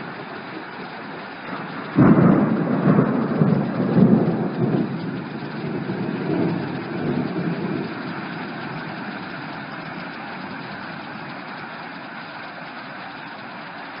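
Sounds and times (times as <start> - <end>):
heavy rain hissing: 0.0 - 14.0
low thunder rumble: 1.4 - 11.6.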